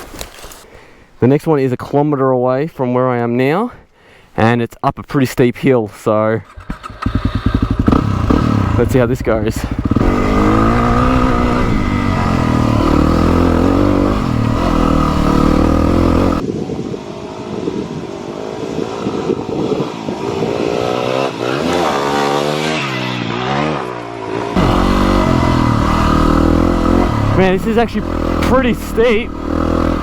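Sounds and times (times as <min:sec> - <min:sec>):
motorcycle engine revving: 0:06.4 - 0:16.4, 0:18.3 - 0:30.0.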